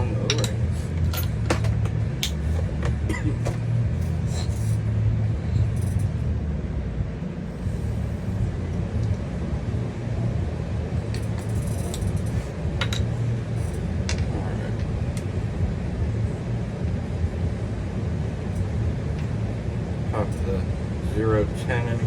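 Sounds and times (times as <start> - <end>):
machinery rumbling: 0.0 - 22.0
metal parts clicking: 11.1 - 13.1.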